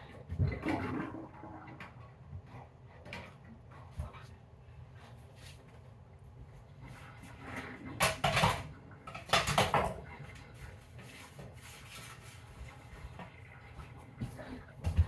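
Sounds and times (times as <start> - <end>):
dishes and cutlery clattering: 8.0 - 10.0.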